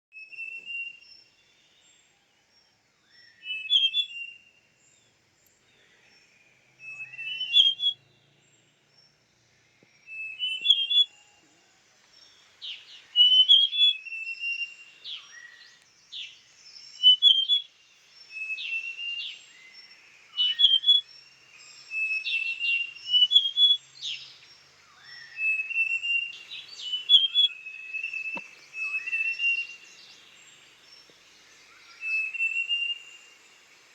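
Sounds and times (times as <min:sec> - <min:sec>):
bird whistled phrases: 0:06.9 - 0:08.0, 0:10.2 - 0:11.1, 0:13.2 - 0:14.7, 0:17.0 - 0:17.7, 0:20.4 - 0:21.0, 0:22.2 - 0:23.8, 0:25.2 - 0:29.8, 0:32.0 - 0:33.2.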